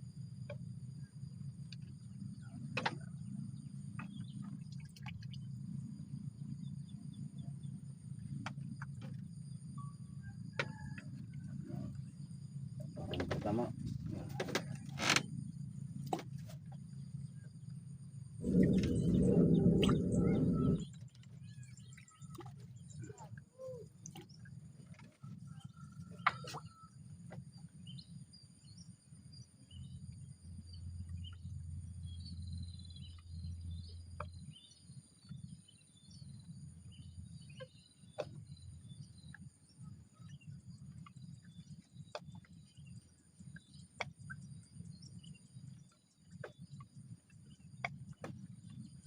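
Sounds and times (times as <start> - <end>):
low steady rumble: 0.0 - 25.9, 26.9 - 49.0.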